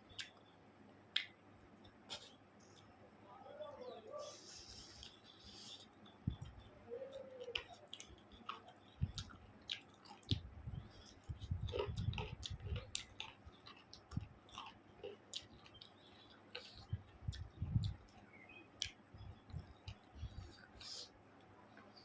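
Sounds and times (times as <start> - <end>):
wet chewing close up: 4.2 - 18.2.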